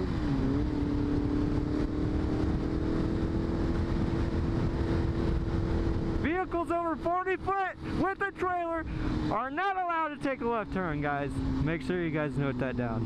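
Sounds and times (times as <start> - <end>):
wind rush over microphone: 0.0 - 6.3
motorcycle engine cruising: 0.0 - 13.0.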